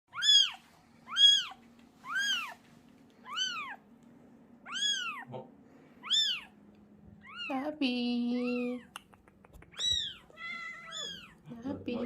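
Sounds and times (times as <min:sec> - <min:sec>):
kitten meowing: 0:00.1 - 0:02.6, 0:03.2 - 0:03.8, 0:04.6 - 0:05.3, 0:06.0 - 0:06.6, 0:07.2 - 0:07.6, 0:08.4 - 0:08.9, 0:09.7 - 0:11.4.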